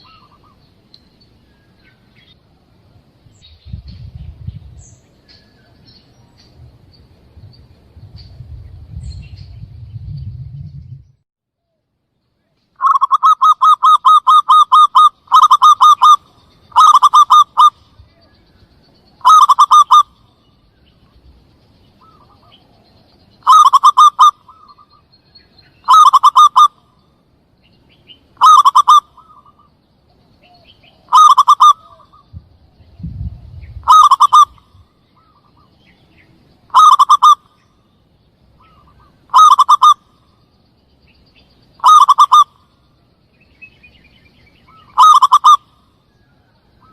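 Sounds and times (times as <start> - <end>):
dove cooing: 12.8 - 18.2, 19.2 - 20.2, 23.4 - 24.9, 25.8 - 26.8, 28.4 - 29.7, 30.4 - 32.2, 33.8 - 34.6, 36.7 - 37.5, 38.6 - 40.0, 41.8 - 42.5, 44.7 - 45.6.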